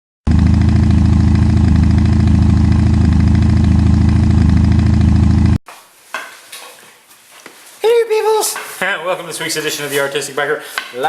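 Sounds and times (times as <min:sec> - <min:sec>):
motorcycle engine idling: 0:00.3 - 0:05.6.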